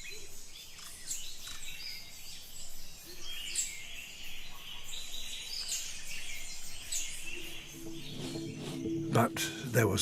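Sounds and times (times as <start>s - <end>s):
birds chirping and calling: 0.0s - 10.0s.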